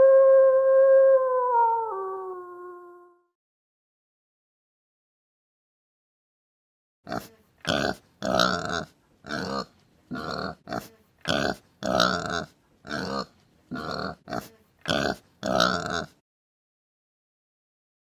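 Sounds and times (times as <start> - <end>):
pig grunting and oinking: 7.1 - 16.2.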